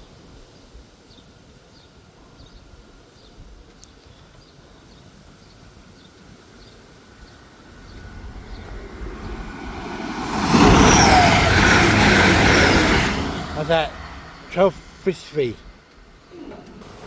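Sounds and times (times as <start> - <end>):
approaching train rumble: 6.9 - 17.0.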